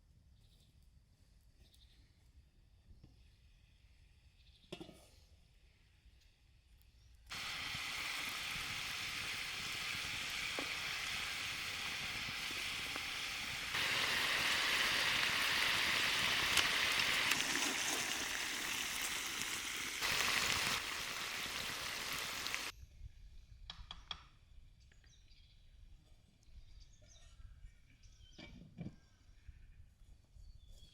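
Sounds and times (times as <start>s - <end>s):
food sizzling in hot oil: 7.3s - 22.7s.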